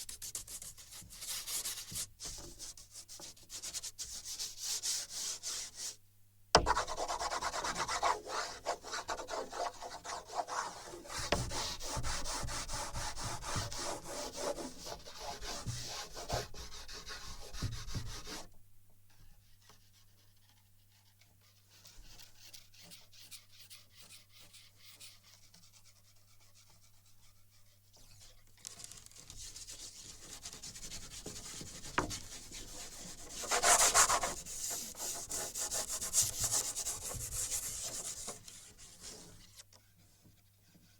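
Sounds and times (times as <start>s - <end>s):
drawing strokes scraping on wood: 6.6s - 18.4s, 21.7s - 39.6s.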